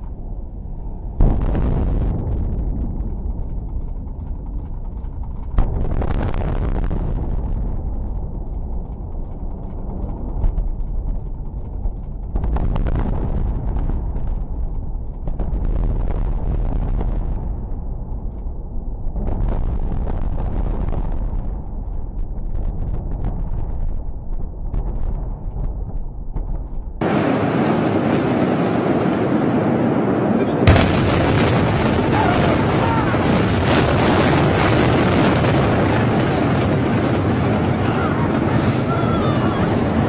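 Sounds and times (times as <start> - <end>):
collapsing structure rumble: 0.0 - 40.0
crashing noise: 1.1 - 40.0
falling debris: 30.4 - 40.0.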